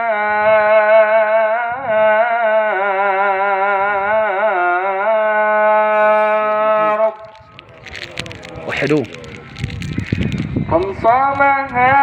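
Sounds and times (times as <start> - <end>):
man singing melismatic chant: 0.0 - 7.2.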